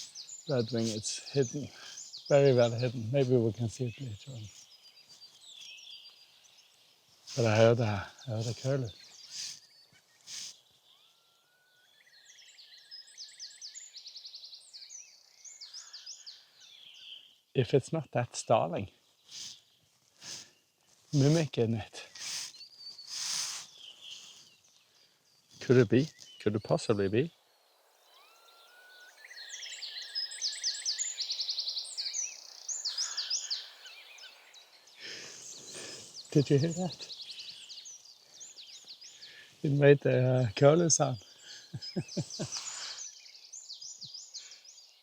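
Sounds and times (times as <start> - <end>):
starling singing: 0.0 - 5.3, 7.2 - 11.1
rustle: 0.0 - 11.0, 18.4 - 39.9, 40.6 - 45.0.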